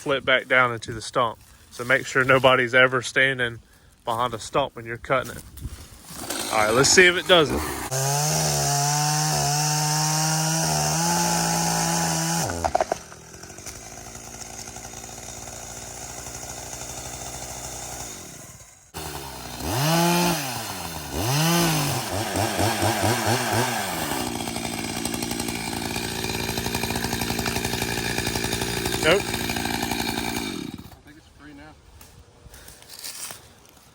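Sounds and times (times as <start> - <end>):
chainsaw cutting and revving: 6.0 - 31.1.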